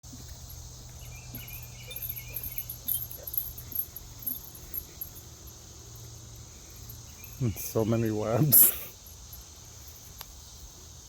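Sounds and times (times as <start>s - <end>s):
insects chirping: 0.0s - 11.0s
very high chirps: 0.9s - 9.5s.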